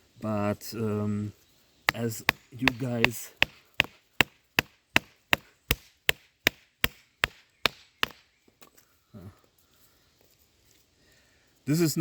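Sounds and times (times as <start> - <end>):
baton knocking on knife spine: 1.9 - 8.2.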